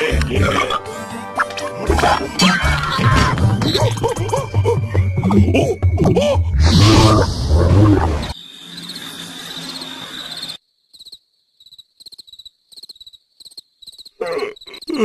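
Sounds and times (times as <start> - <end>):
crickets chirping: 8.2 - 15.0.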